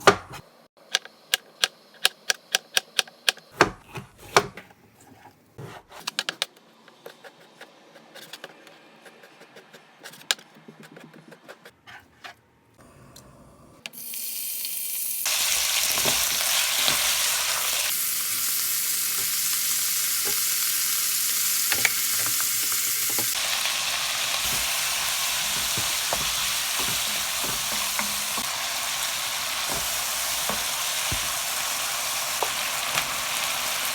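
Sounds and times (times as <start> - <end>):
food sizzling in hot pan: 14.0 - 33.9
knife chopping on cutting board: 24.4 - 33.6.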